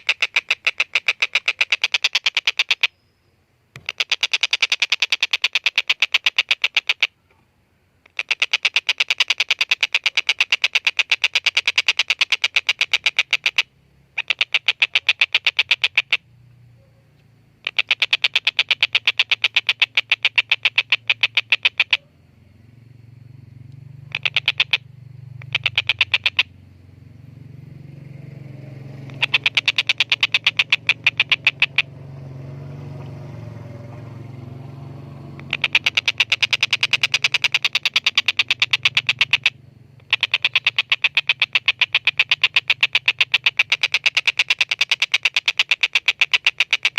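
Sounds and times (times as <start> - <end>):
kingfisher chattering call: 0.0 - 3.0, 3.8 - 7.1, 8.0 - 16.3, 17.6 - 22.1, 24.0 - 26.6, 28.8 - 32.6, 33.2 - 46.9
low steady hum: 21.9 - 25.6, 26.5 - 29.6.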